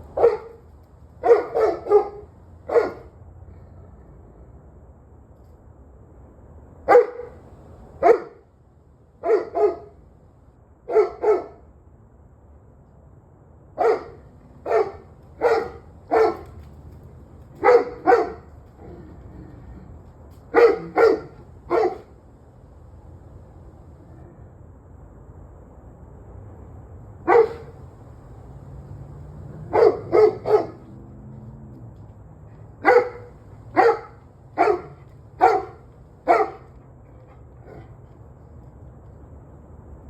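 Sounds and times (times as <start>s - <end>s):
dog barking: 0.1s - 0.6s, 1.2s - 3.2s, 6.9s - 7.4s, 8.0s - 8.4s, 9.2s - 10.0s, 10.9s - 11.6s, 13.8s - 16.6s, 17.6s - 18.5s, 20.5s - 22.1s, 27.3s - 27.8s, 29.5s - 31.0s, 32.8s - 36.7s.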